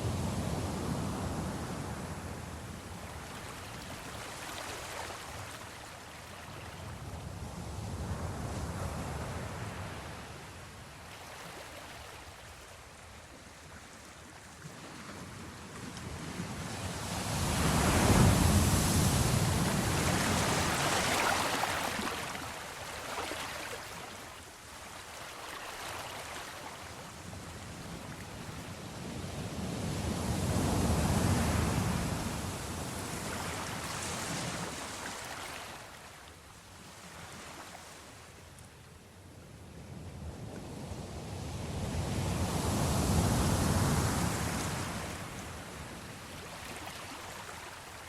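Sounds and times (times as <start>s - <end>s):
ocean waves washing in: 15.5s - 24.7s.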